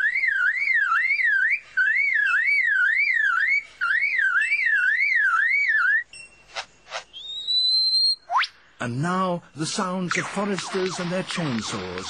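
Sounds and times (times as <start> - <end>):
bird mimicking car alarm: 0.0 - 6.1.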